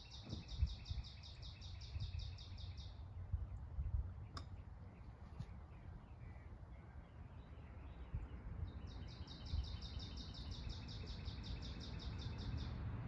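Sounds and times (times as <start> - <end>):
songbird trilling: 0.0 - 12.8.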